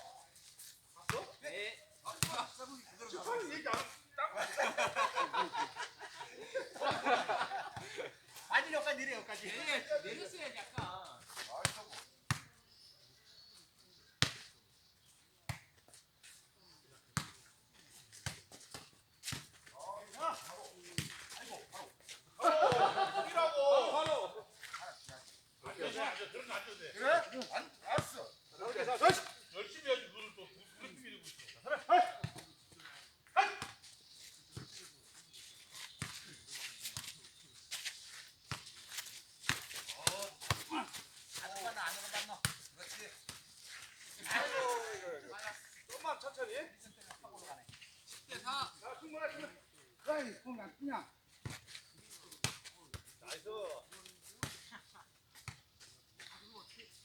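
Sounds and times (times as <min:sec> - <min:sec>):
ball being kicked and bouncing: 0:11.6 - 0:12.6, 0:39.5 - 0:43.5.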